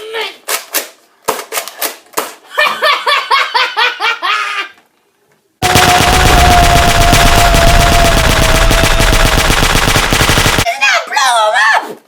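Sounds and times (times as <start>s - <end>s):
laughter: 2.4s - 4.8s
machine-gun fire: 5.6s - 10.7s
sharp clicks: 5.6s - 10.7s.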